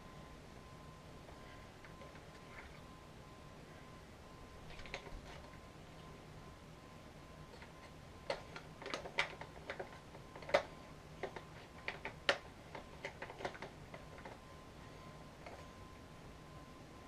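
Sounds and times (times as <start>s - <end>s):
vacuum cleaner parts clicking: 8.3s - 14.4s.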